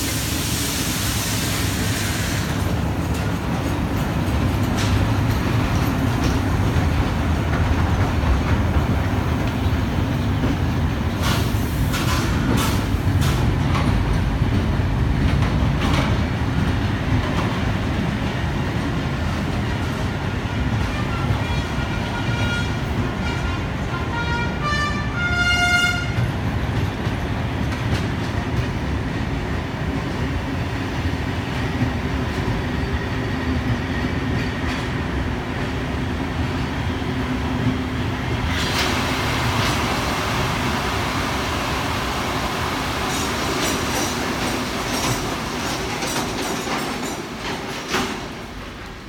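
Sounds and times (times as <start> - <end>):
steady loud hiss: 0.0 - 2.9
train wheels rumbling on rails: 0.0 - 49.0.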